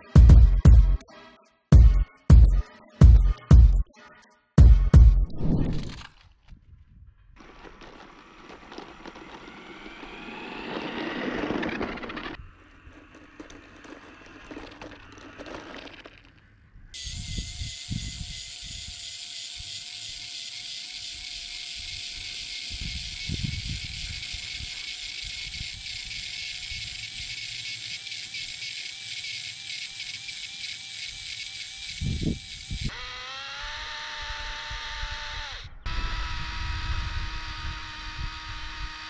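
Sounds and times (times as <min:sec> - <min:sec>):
small electric motor whirring: 0:07.4 - 0:39.0.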